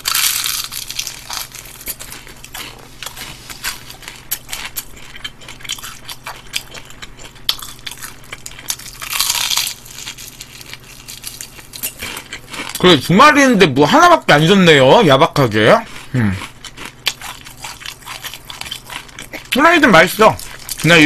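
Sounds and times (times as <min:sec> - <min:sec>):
crunchy bite: 0:00.0 - 0:12.8
crackling chewing: 0:00.0 - 0:13.1, 0:15.4 - 0:21.0.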